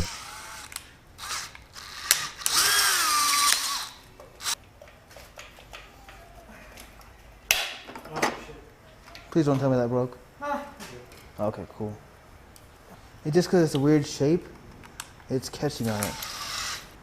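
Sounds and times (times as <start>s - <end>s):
electric drill whining: 0.0s - 4.6s, 15.9s - 17.0s.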